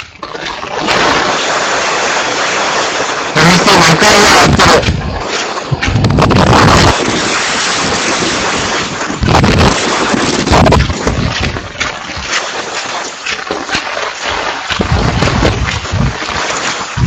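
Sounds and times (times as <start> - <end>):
strong wind buffeting microphone: 0.9 - 12.4, 14.7 - 17.0.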